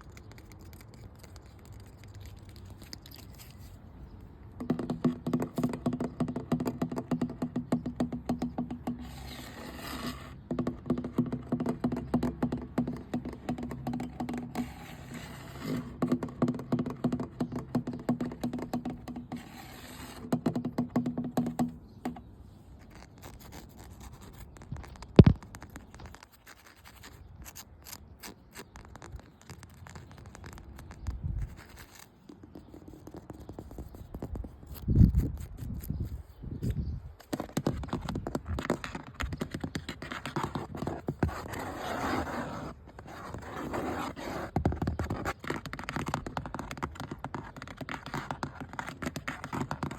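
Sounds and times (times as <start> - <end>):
light taps and scratches: 0.0 - 49.9
rapid scratching on ringing object: 9.0 - 10.4, 14.0 - 16.0, 19.1 - 20.3.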